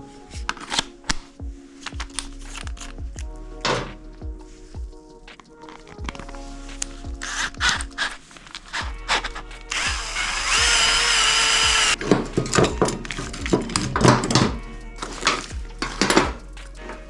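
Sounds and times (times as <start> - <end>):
background music: 0.0 - 17.0
handheld power tool running: 7.2 - 12.0.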